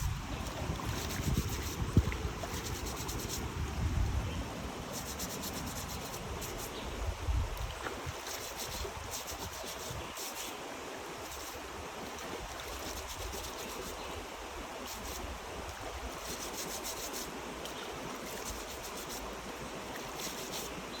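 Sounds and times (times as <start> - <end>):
wind on microphone: 0.0 - 10.2.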